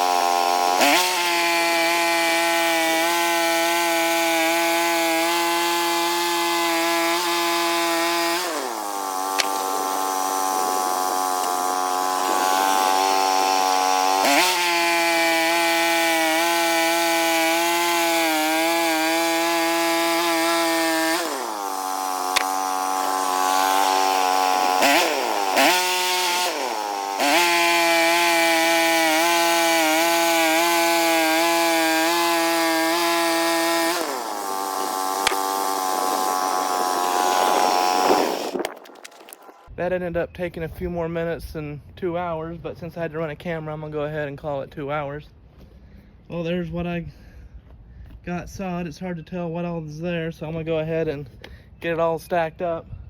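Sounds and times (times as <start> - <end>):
sawmill engine sawing log: 0.0 - 39.7.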